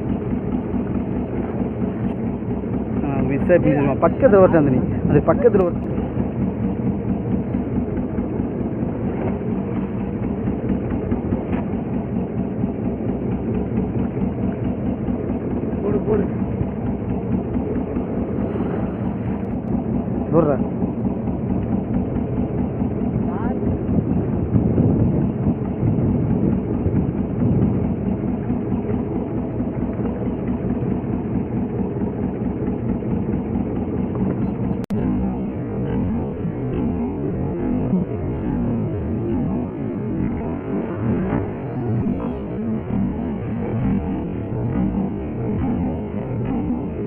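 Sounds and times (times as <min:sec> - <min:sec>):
boat engine running: 0:00.0 - 0:47.0.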